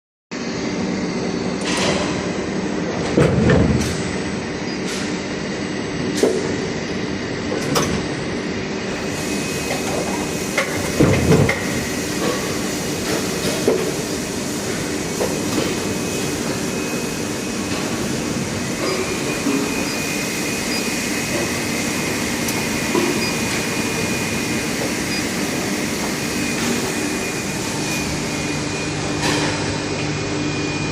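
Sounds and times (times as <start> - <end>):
moulding machine humming: 2.3 - 30.9.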